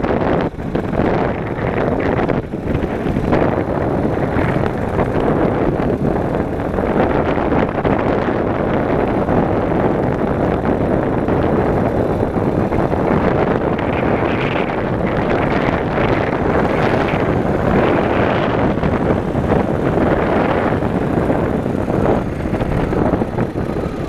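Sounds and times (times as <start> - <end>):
motorcycle engine running: 0.0 - 24.0
wind rushing over microphone: 0.0 - 24.0.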